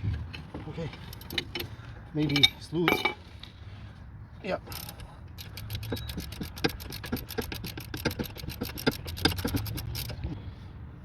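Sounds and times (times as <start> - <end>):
ratchet wrench clicking: 4.7 - 10.2.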